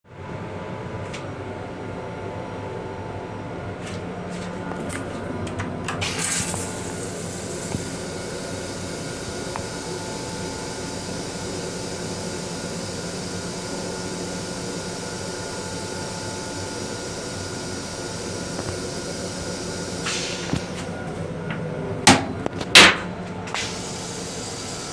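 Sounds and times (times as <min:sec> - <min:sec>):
train running hum: 0:00.1 - 0:24.9
rushing hiss: 0:06.0 - 0:21.0, 0:23.6 - 0:24.9.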